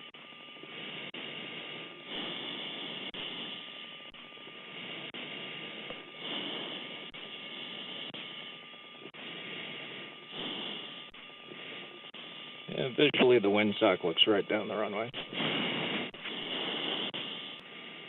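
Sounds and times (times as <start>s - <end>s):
faint steady tone: 0.0s - 18.0s
cockpit rushing hiss: 4.6s - 8.3s, 9.2s - 18.0s.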